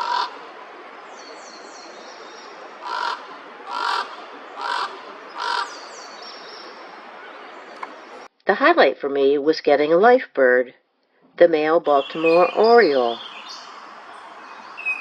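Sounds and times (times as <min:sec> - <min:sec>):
raven croaking: 0:00.0 - 0:08.3.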